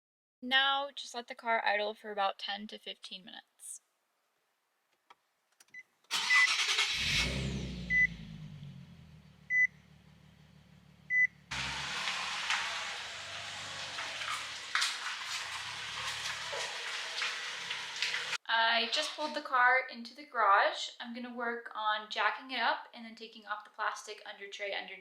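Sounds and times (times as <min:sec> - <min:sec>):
car engine starting and idling: 0:06.1 - 0:18.4
dashboard warning chime beeping: 0:06.2 - 0:06.6, 0:07.9 - 0:08.2, 0:09.5 - 0:09.8, 0:11.1 - 0:11.4.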